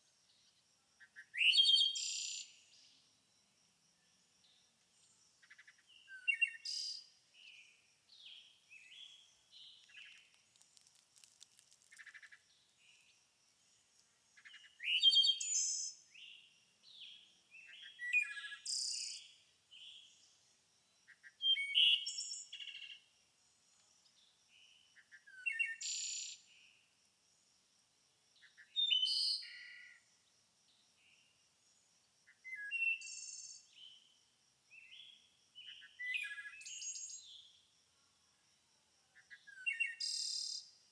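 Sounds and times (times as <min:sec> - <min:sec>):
songbirds singing and chirping: 0:00.3 - 0:03.1, 0:04.0 - 0:23.1, 0:23.8 - 0:26.6, 0:28.4 - 0:30.0, 0:34.7 - 0:37.6, 0:39.2 - 0:40.7.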